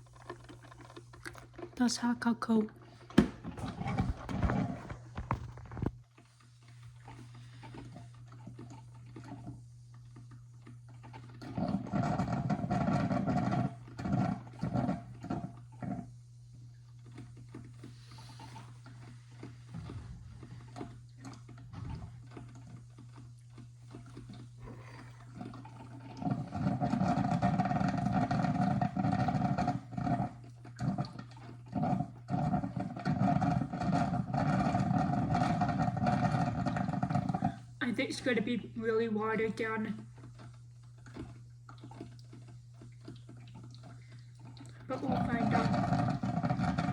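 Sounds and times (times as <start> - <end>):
coffee maker gurgling and sputtering: 0.0 - 46.9
steady low hum: 11.5 - 46.9.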